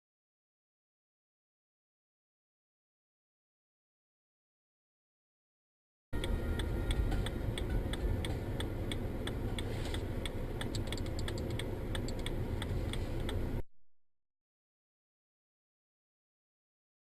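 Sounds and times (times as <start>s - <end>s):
regular clicking: 6.2s - 13.4s
engine and road rumble: 6.2s - 13.6s.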